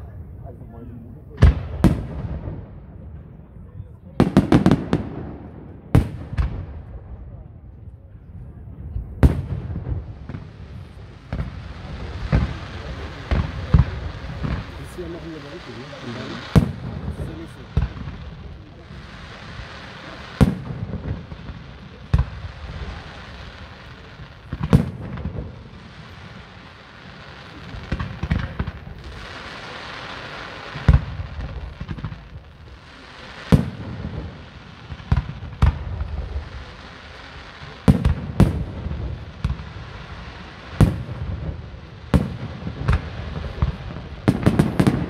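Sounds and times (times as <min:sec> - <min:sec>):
hissing crackle: 0:10.0 - 0:45.0.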